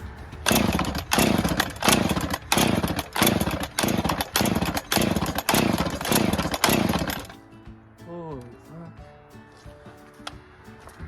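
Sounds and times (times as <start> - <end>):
chainsaw engine bursts: 0.4 - 7.4.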